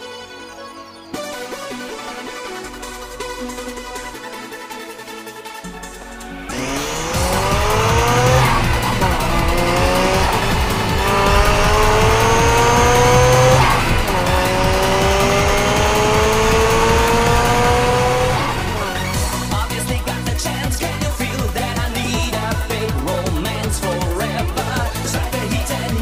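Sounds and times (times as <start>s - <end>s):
electronic music with steady beat: 0.0s - 26.0s
rotary engine accelerating hard: 6.4s - 26.0s.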